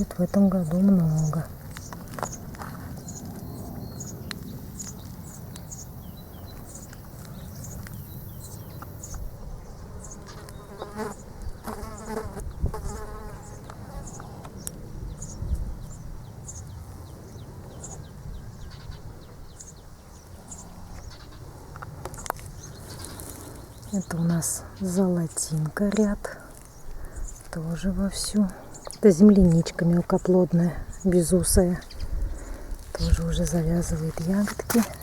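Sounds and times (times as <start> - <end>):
insect buzzing: 10.2 - 14.4.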